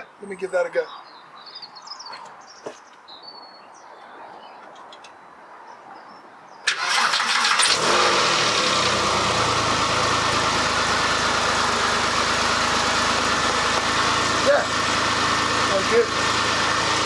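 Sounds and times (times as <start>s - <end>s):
starter motor cranking: 6.7s - 17.0s
car engine idling: 7.7s - 17.0s.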